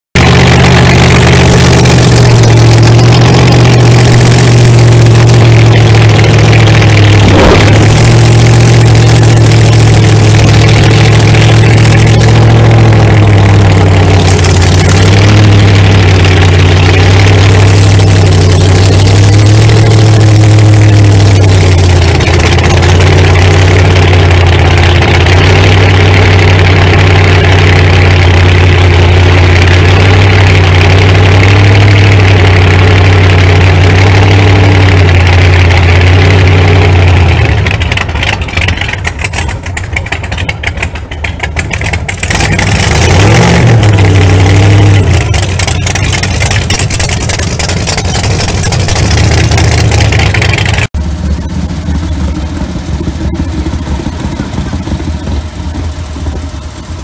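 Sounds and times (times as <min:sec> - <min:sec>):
truck engine idling loudly: 0:00.1 - 0:57.0.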